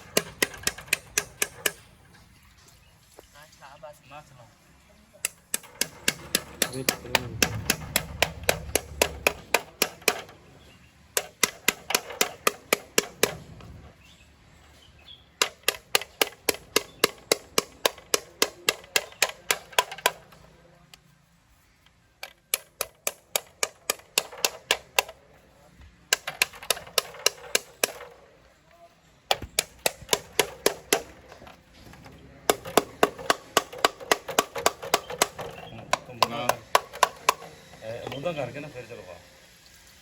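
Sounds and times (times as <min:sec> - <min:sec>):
fuel injectors clicking: 0:00.0 - 0:02.1, 0:05.2 - 0:10.5, 0:11.1 - 0:13.8, 0:15.3 - 0:21.2, 0:21.8 - 0:25.4, 0:26.1 - 0:28.7, 0:29.3 - 0:38.4.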